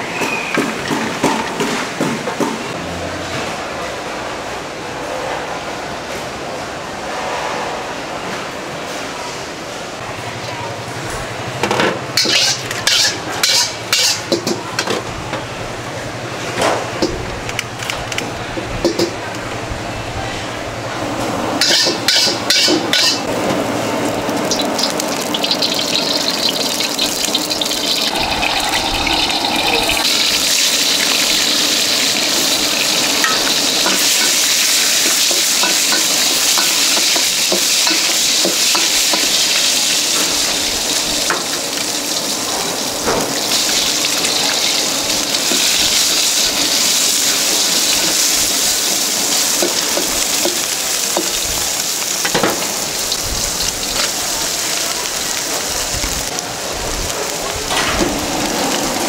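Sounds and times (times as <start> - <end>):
food sizzling in hot oil: 12.2 - 14.4, 21.6 - 59.0.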